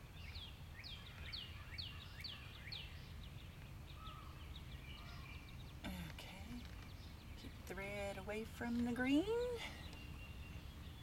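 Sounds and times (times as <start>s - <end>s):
low outdoor rumble: 2.7s - 11.0s
songbird whistling notes: 9.6s - 11.0s.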